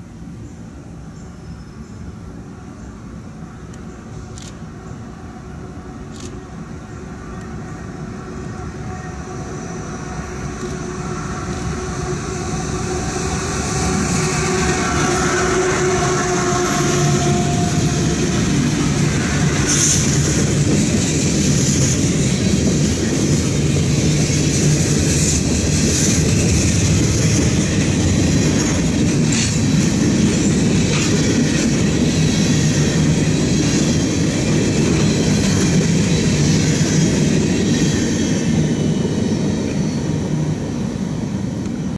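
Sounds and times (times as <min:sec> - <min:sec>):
freight train wheels rumbling: 0:00.0 - 0:41.9
clickety-clack over rail joints: 0:10.4 - 0:38.7.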